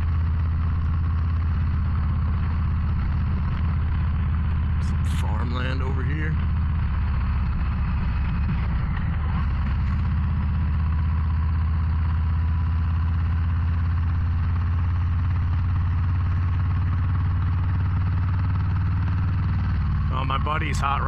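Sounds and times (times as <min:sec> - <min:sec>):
motorcycle engine cruising: 0:00.0 - 0:21.0
road noise: 0:00.0 - 0:21.0.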